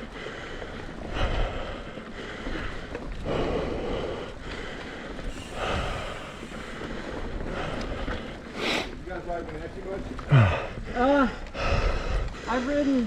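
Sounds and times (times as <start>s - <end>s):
person breathing hard: 0.0s - 9.0s, 10.3s - 13.0s.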